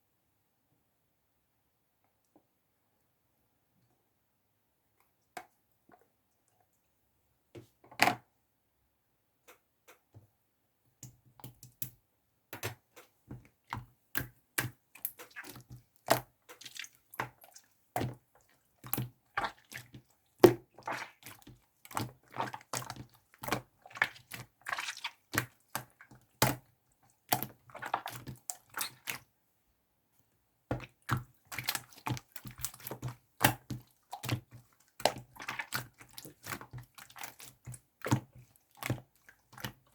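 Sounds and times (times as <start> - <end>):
small irregular clicks and taps: 9.4 - 10.3, 11.0 - 17.3.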